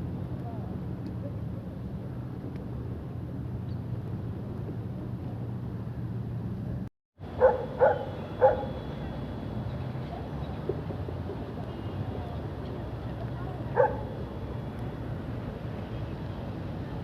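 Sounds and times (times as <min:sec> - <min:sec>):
low engine hum: 0:00.0 - 0:17.0
dog barking: 0:07.4 - 0:08.7, 0:13.8 - 0:14.1.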